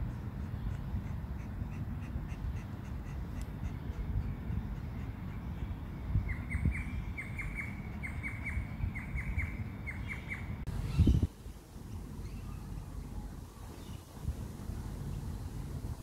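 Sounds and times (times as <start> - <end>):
wind rumble on microphone: 3.9 - 16.0.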